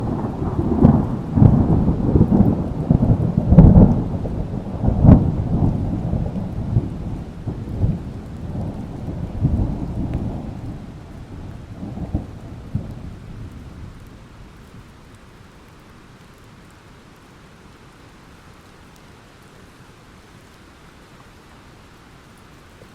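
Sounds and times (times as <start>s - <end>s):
thunder rumbling: 0.0s - 15.0s
rain: 0.0s - 22.9s.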